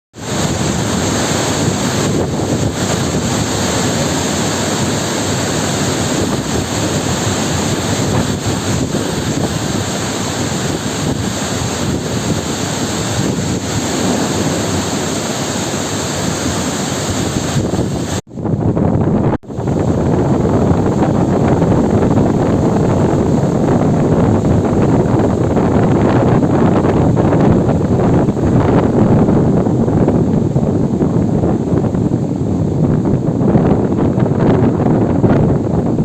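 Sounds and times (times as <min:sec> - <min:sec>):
heavy rain falling: 0:00.2 - 0:18.2.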